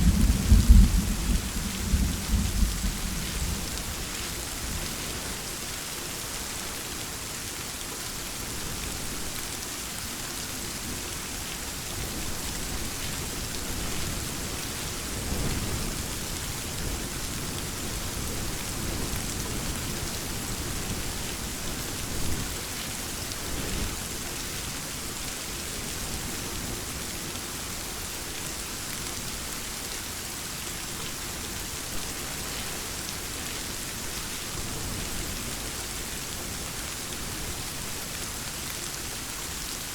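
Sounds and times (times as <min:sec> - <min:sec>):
thunder rumbling: 0:00.0 - 0:04.1
steady rain falling: 0:00.0 - 0:39.9.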